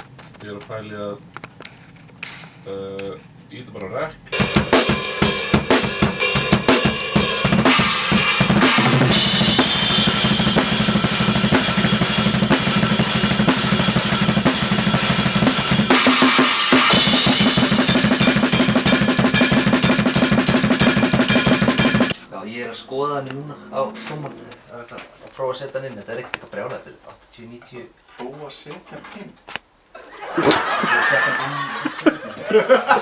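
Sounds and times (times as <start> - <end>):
fast bass drum strokes: 4.4 - 22.1
loud rock music: 4.4 - 22.1
cymbals: 4.4 - 22.2.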